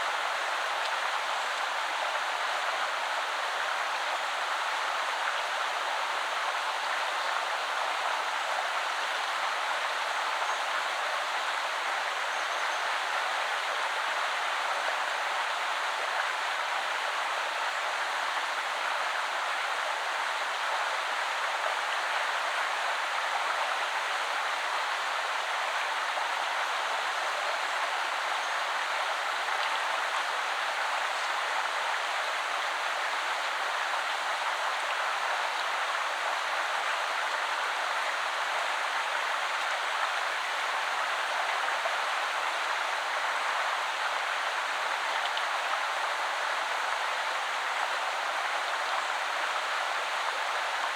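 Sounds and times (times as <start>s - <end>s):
river flowing: 13.0s - 50.9s.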